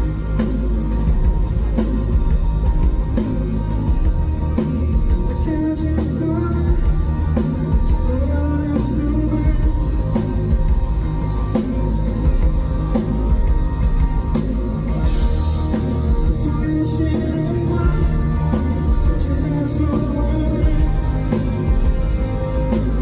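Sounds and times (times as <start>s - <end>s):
rock band playing live: 0.0s - 23.0s
person singing: 16.2s - 21.9s.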